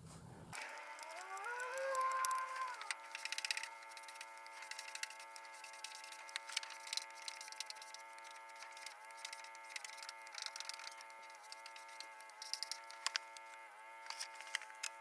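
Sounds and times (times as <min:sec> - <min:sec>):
belt file whining: 0:00.5 - 0:15.0
abrasive ticking: 0:00.6 - 0:03.7.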